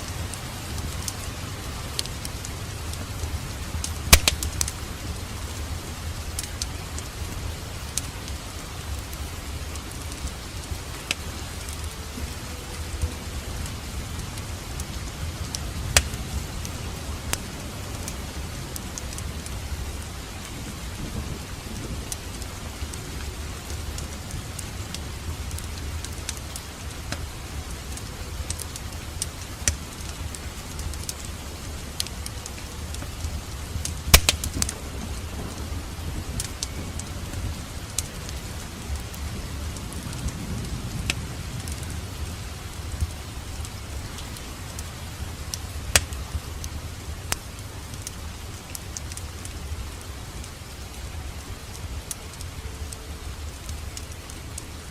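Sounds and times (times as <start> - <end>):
fire popping and snapping: 0.0 - 54.9
fire rumbling and hissing: 0.0 - 54.9.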